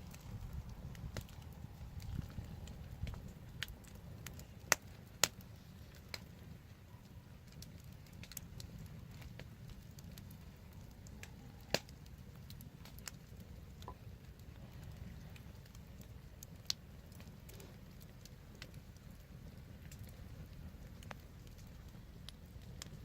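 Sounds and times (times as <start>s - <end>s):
sharp fire pops: 0.0s - 6.3s, 11.2s - 23.0s
wood fire crackling: 0.0s - 23.0s.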